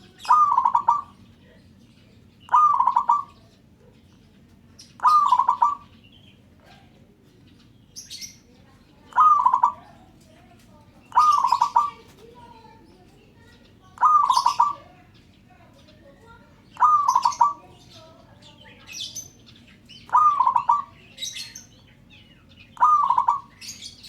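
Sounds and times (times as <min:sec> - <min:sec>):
dove cooing: 0:00.0 - 0:01.2, 0:02.5 - 0:03.8, 0:05.0 - 0:05.9, 0:09.0 - 0:10.3, 0:11.0 - 0:12.6, 0:13.9 - 0:15.1, 0:16.2 - 0:19.3, 0:20.0 - 0:21.6, 0:22.7 - 0:23.8
faint high bird chirp: 0:00.0 - 0:24.0.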